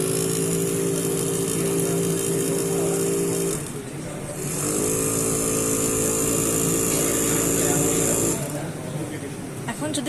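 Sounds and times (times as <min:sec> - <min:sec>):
small electric motor whining: 0:00.0 - 0:03.8, 0:04.4 - 0:08.5.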